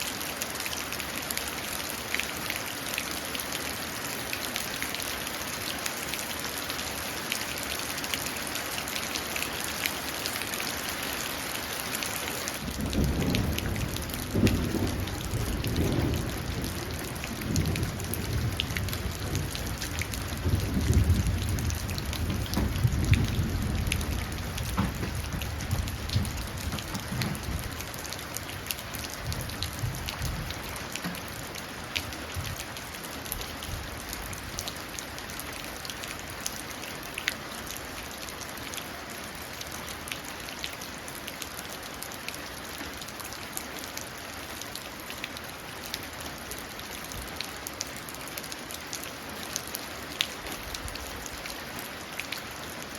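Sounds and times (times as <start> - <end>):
rain falling into puddle: 0.0 - 52.9
thunder rumbling: 12.6 - 30.8.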